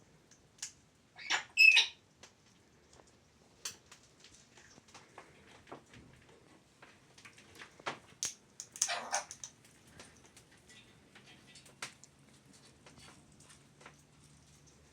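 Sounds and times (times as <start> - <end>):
parrot squawk: 1.2 - 2.0, 8.8 - 9.4.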